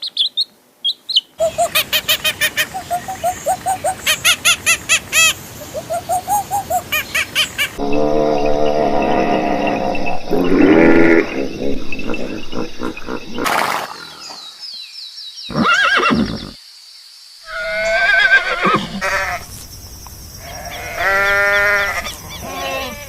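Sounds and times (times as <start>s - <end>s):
animal calls: 1.4s - 14.4s, 20.4s - 23.0s.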